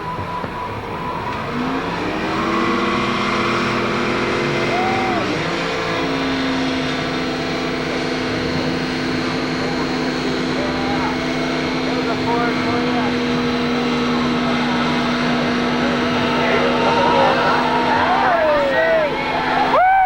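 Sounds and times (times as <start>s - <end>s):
car engine revving high: 0.0s - 20.0s
tires spinning: 0.0s - 20.0s.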